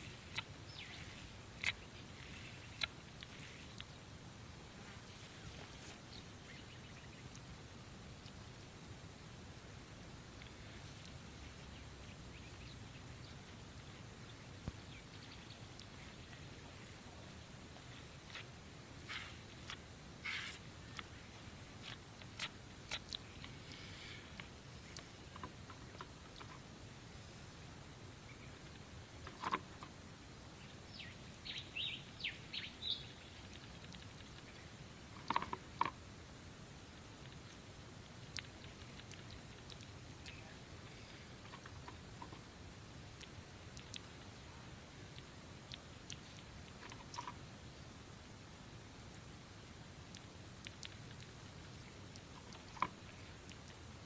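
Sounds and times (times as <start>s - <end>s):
bird chirping: 0.0s - 4.1s, 5.1s - 7.4s, 10.4s - 18.4s, 28.2s - 28.8s, 30.5s - 35.5s
small birds chirping: 0.0s - 4.2s, 4.9s - 7.6s, 10.3s - 26.6s, 28.1s - 35.9s, 37.2s - 48.0s
low background rumble: 0.0s - 54.0s.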